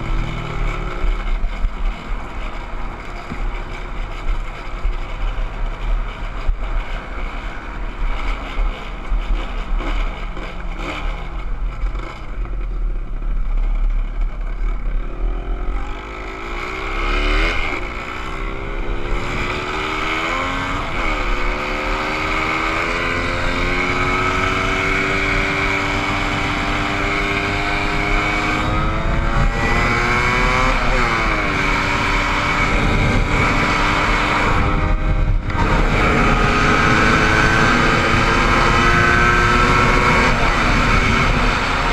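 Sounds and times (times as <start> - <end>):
motorcycle engine: 0.0 - 41.9
wind on microphone: 17.4 - 41.9.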